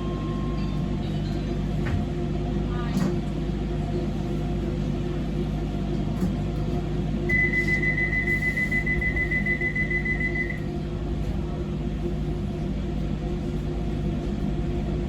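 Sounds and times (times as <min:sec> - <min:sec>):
low hum of stationary train: 0:00.0 - 0:15.0
high warning beep: 0:07.3 - 0:10.6.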